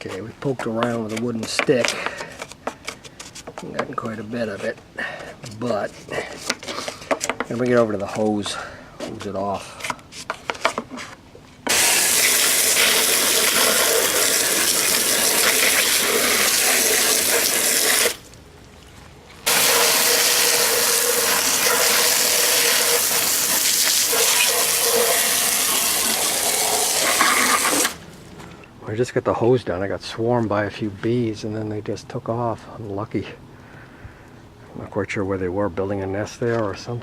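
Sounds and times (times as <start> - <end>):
hose spraying water: 11.7 - 18.3, 19.4 - 28.1.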